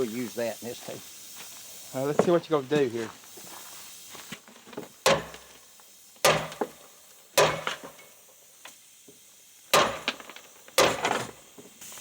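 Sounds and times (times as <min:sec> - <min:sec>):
hammer striking metal: 0:05.1 - 0:05.4, 0:06.2 - 0:06.7, 0:07.4 - 0:08.0, 0:09.7 - 0:10.2.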